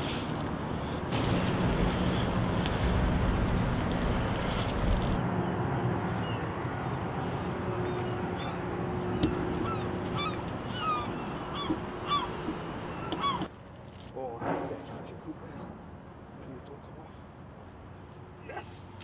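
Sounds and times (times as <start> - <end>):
birds calling: 0.0 - 5.2, 6.1 - 13.5
faint steady hum: 0.0 - 5.2
steady background noise: 0.0 - 19.0.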